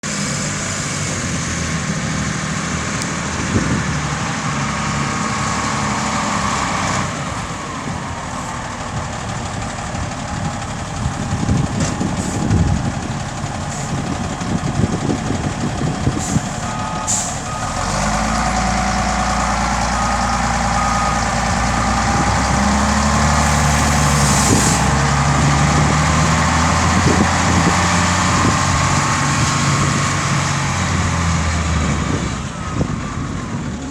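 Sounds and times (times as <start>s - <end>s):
diesel truck engine running: 0.0s - 33.9s
reversing alarm beeping: 16.1s - 24.9s.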